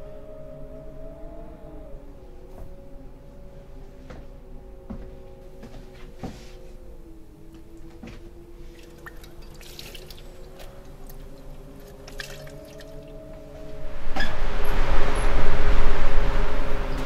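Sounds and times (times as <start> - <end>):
low two-note drone: 0.0 - 17.0
light drip-like ticks: 8.7 - 13.2
loud rush of noise: 12.7 - 17.0.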